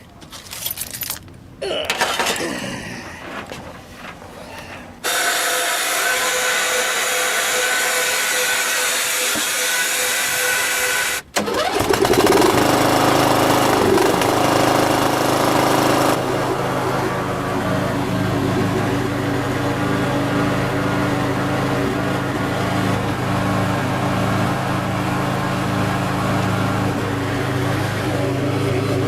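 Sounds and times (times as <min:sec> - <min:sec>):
starter motor whirring: 0:05.0 - 0:29.0
tractor engine running: 0:11.3 - 0:29.0.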